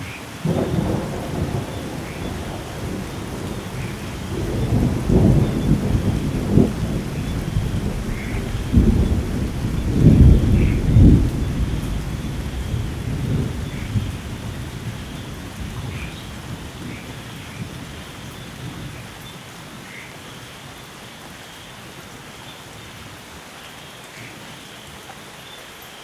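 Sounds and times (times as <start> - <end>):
steady rain: 0.0 - 26.0
thunder rolling: 0.4 - 18.0.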